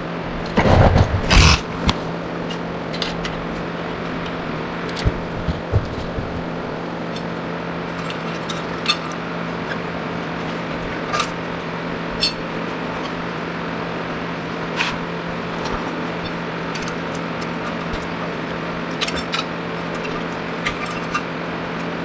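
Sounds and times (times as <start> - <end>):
steady machine hum: 0.0 - 8.4.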